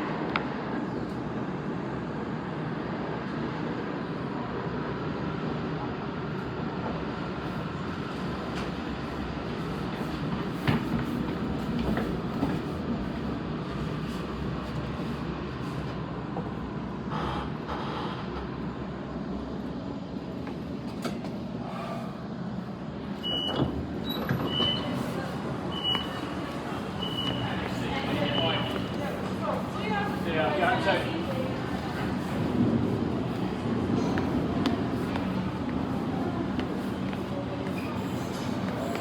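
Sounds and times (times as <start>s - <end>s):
electric train rumble: 0.0s - 39.0s.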